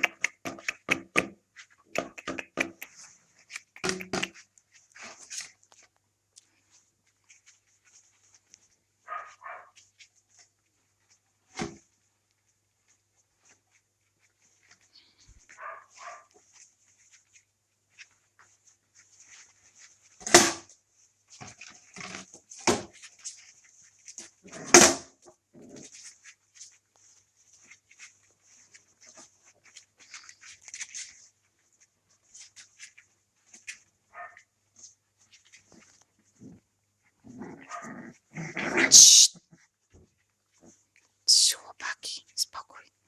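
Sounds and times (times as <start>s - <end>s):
puppies chewing and smacking: 0.0s - 7.6s
puppy yaps: 9.1s - 9.7s, 15.6s - 16.3s, 34.1s - 34.4s, 38.7s - 39.4s.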